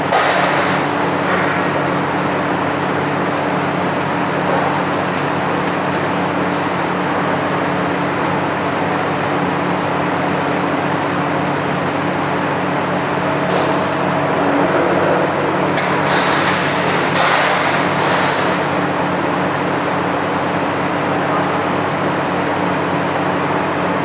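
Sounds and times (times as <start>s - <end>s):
machine motor hum: 12.2s - 18.1s
sharp metallic knocks: 13.5s - 18.5s.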